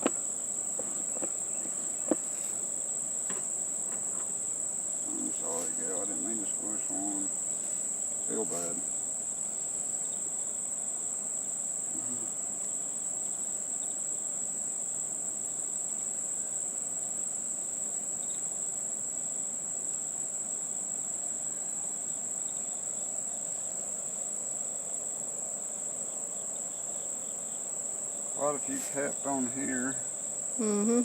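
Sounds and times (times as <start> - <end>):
honeybees buzzing: 0.0 - 15.9
steady high-pitched whine: 0.0 - 26.2, 26.9 - 31.0.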